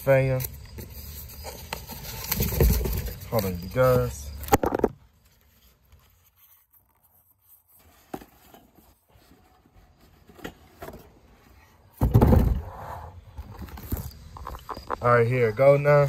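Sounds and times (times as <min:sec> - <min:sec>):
scraping rustle of packaging: 0:00.0 - 0:11.8.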